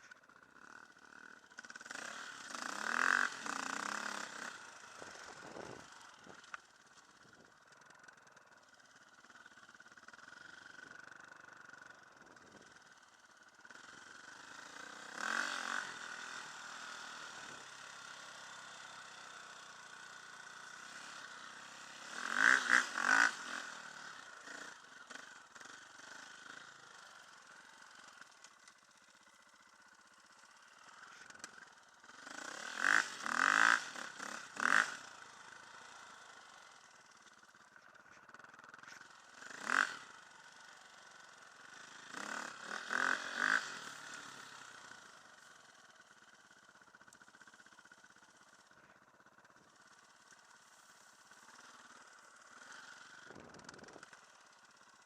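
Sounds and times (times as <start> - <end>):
dirt bike engine revving: 0.6 - 6.4, 13.7 - 28.3, 31.2 - 36.8, 38.3 - 40.3, 40.9 - 45.1.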